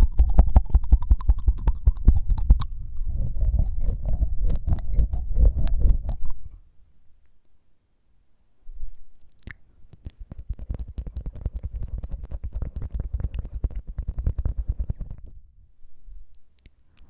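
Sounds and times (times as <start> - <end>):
rapid tongue fluttering: 0.0 - 6.6, 9.3 - 15.4
tongue clicks: 0.0 - 6.6, 8.9 - 15.3, 16.1 - 17.0.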